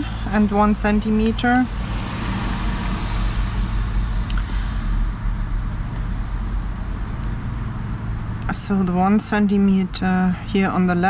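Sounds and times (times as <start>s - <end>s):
passing vehicles hissing: 0.0s - 8.7s
constant low hum: 0.0s - 11.0s
road traffic rumble: 0.0s - 11.0s.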